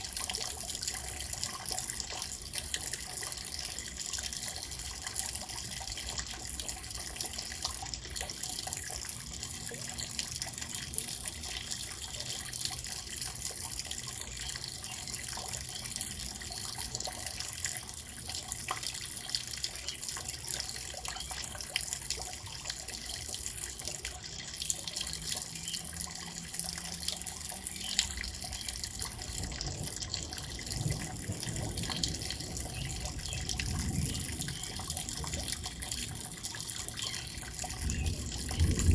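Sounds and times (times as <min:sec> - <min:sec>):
steady rain falling: 0:00.0 - 0:38.9
water drops dripping: 0:00.0 - 0:38.9.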